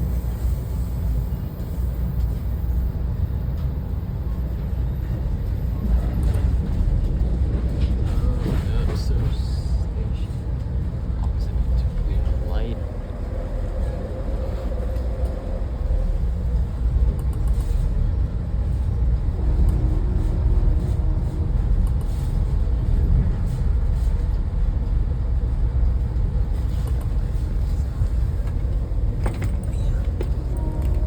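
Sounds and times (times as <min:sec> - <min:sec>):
motor vehicle engine and road noise: 0:09.0 - 0:31.0.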